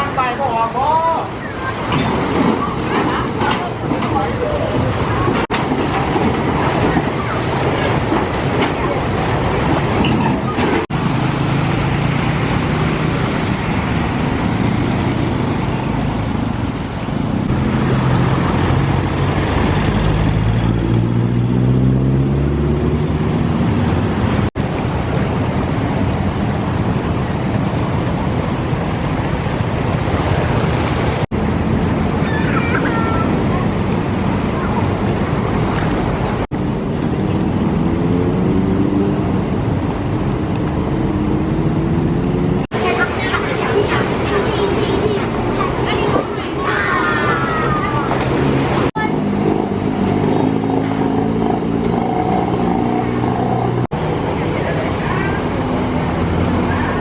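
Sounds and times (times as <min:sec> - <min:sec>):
traffic engines rushing: 0:00.0 - 0:57.0
vehicles through floodwater: 0:00.0 - 0:57.0
vehicle engine speeding up: 0:08.1 - 0:25.0, 0:33.8 - 0:57.0.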